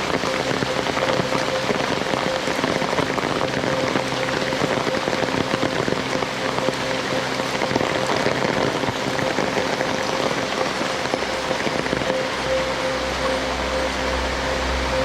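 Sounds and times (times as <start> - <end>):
heavy rain falling: 0.0 - 15.0
steady humming tone: 0.0 - 15.0.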